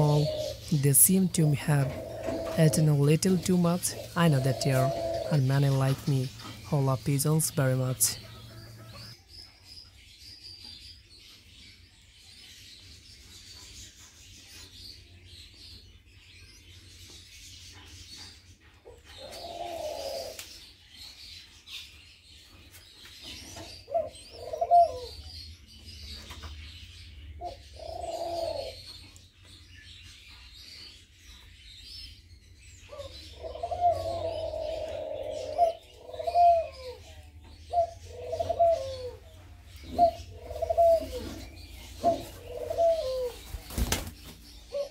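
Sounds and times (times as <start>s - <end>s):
pigeons cooing: 0.0s - 9.1s, 18.8s - 21.3s, 22.3s - 26.0s, 26.7s - 29.5s, 32.6s - 44.9s.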